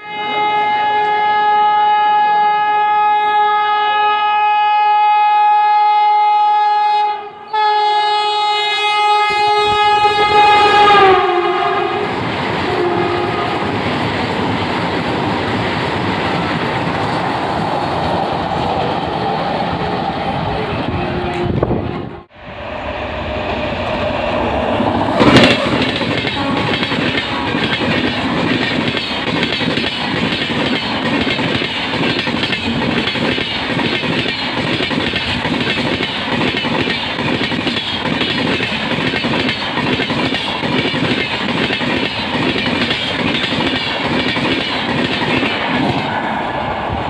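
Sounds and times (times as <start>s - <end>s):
passing train coaches clatter: 0.0s - 5.4s, 7.3s - 47.0s
train horn: 0.0s - 13.8s, 20.9s - 24.8s, 25.4s - 27.8s.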